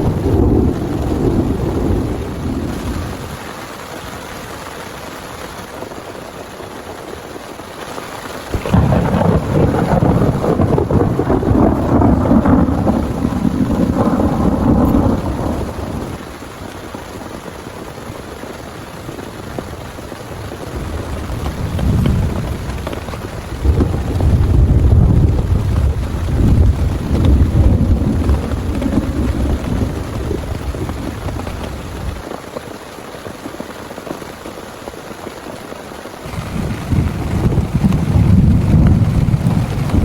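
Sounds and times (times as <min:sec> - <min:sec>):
thunder rumbling: 0:00.0 - 0:03.8, 0:08.5 - 0:32.4, 0:36.2 - 0:40.0
heavy rain: 0:00.0 - 0:40.0.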